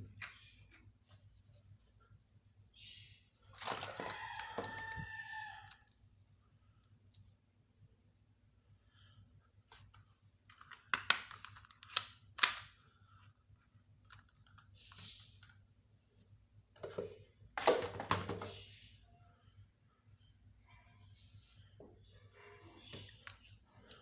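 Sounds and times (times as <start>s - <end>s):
plastic toy pieces clicking: 10.5s - 12.7s.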